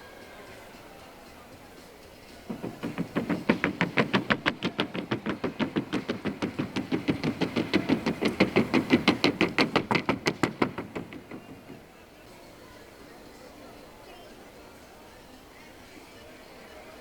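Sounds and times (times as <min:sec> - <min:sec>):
hoofbeats on wooden board: 0:02.5 - 0:12.0.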